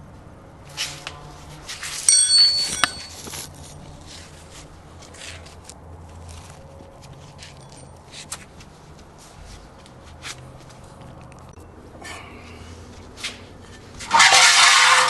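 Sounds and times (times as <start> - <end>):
metal pieces clinking: 2.0 - 3.5
metal scrapes: 13.2 - 15.0.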